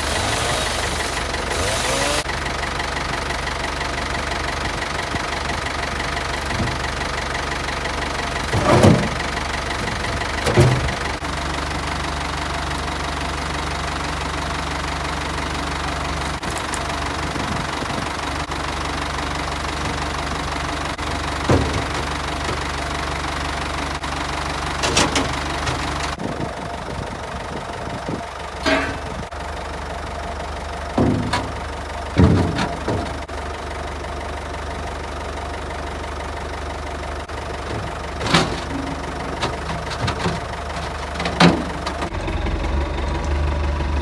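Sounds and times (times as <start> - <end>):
tractor diesel engine running: 0.0 - 44.0
short engine knocks: 3.9 - 11.6, 16.1 - 26.4, 28.5 - 29.4, 30.9 - 33.6, 37.2 - 43.4.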